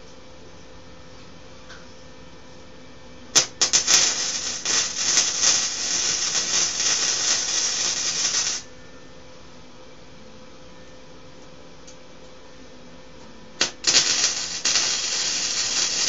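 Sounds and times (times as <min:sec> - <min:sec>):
arc welder crackling: 0:03.3 - 0:08.7, 0:13.6 - 0:16.0.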